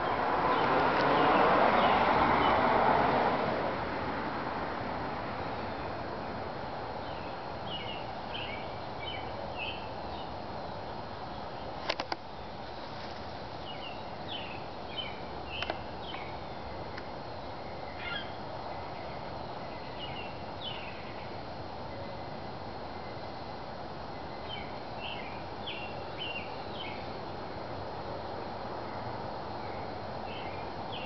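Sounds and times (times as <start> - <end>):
small birds chirping: 7.0 - 22.3, 24.1 - 27.4, 28.9 - 31.0.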